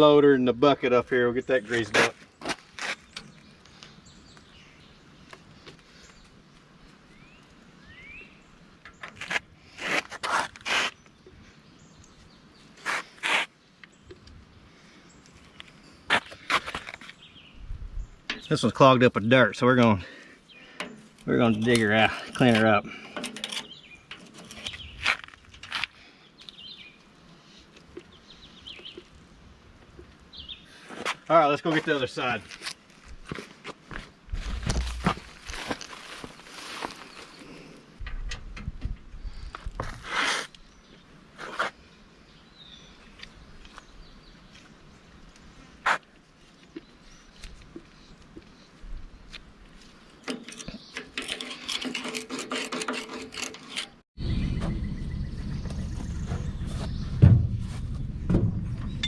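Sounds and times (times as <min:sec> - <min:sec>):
small birds chirping: 0:00.0 - 0:09.8, 0:10.7 - 0:32.4, 0:39.1 - 0:52.2, 0:52.8 - 0:59.0
faint outdoor background: 0:00.0 - 0:59.0
bird chirping: 0:03.0 - 0:09.2, 0:20.2 - 0:25.1, 0:26.2 - 0:29.2, 0:50.0 - 0:51.8, 0:53.5 - 0:59.0.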